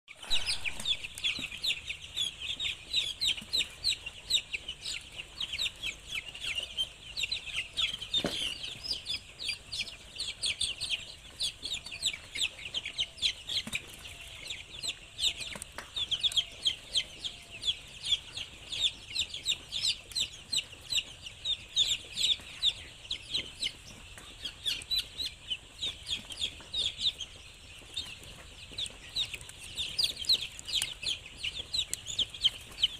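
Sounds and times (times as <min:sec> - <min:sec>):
chickens clucking: 0:00.1 - 0:32.9
chickens peeping: 0:00.1 - 0:32.9.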